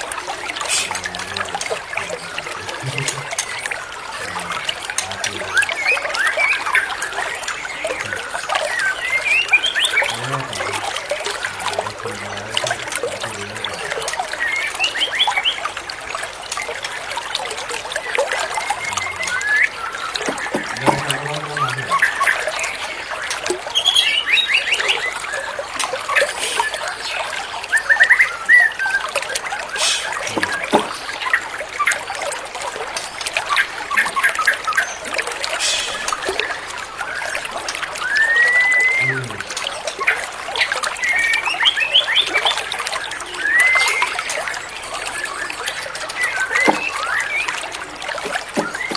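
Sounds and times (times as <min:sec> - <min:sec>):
water trickling: 0:00.0 - 0:48.9
bird singing whistles and trills: 0:02.0 - 0:10.5, 0:14.3 - 0:15.7, 0:18.0 - 0:32.0, 0:35.6 - 0:48.9.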